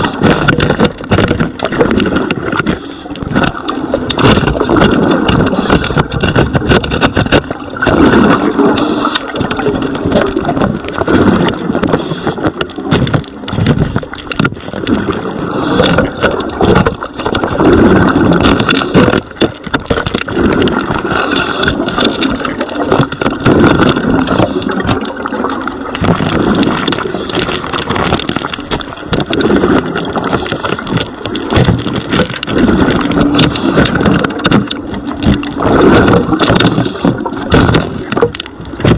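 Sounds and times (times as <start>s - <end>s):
gurgling exhaust bubbles: 0.0s - 38.9s
scuba regulator inhale hiss: 8.8s - 9.2s, 15.5s - 16.1s, 21.2s - 21.7s.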